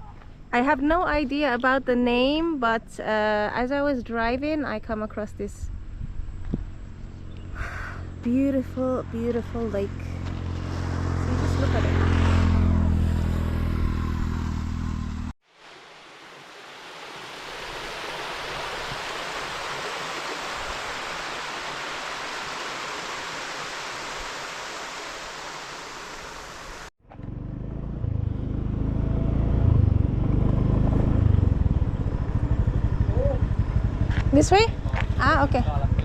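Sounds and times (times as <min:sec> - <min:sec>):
moped engine rumbling: 0:29.9 - 0:36.0.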